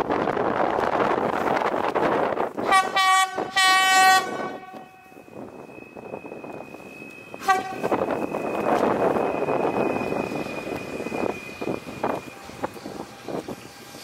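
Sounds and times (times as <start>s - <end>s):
train horn blasts: 2.6s - 5.2s, 7.4s - 8.0s.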